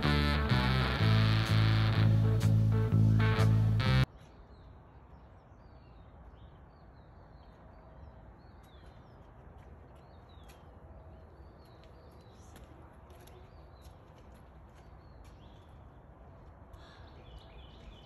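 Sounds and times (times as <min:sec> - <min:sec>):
small birds chirping: 0:04.1 - 0:18.0.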